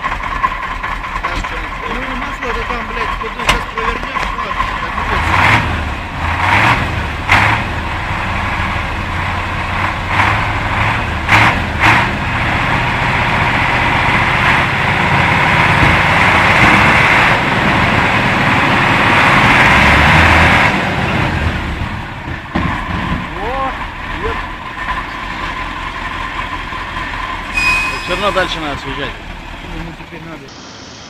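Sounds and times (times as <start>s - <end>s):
heavy truck engine running: 0.0s - 31.0s
rough rush of noise: 25.6s - 31.0s.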